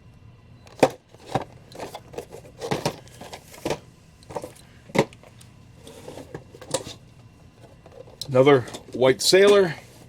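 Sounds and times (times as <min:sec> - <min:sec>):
scraping and rustling: 0:01.1 - 0:09.0.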